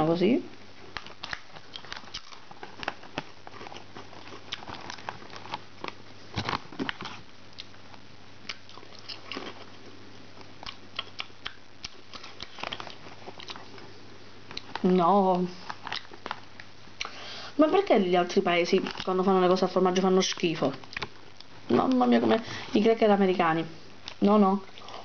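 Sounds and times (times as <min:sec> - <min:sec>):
crisp crunches of chewing: 0:00.8 - 0:15.0, 0:15.6 - 0:17.2.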